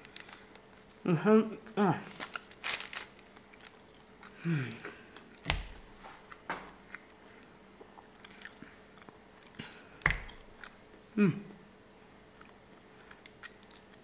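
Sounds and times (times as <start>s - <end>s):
person chewing food: 2.2s - 11.2s, 12.3s - 14.0s.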